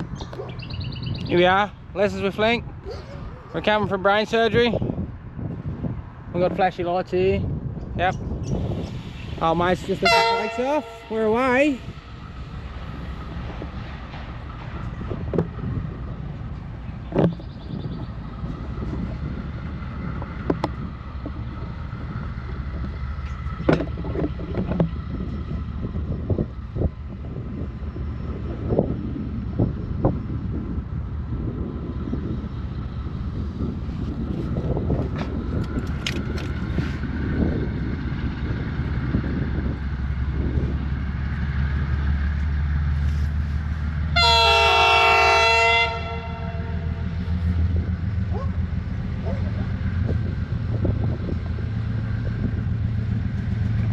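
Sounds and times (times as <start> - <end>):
freight wagons rolling rumble: 0.0 - 44.6, 45.9 - 53.9
locomotive horn blast: 9.9 - 12.0, 44.1 - 47.5
faint high held tone: 10.0 - 11.9.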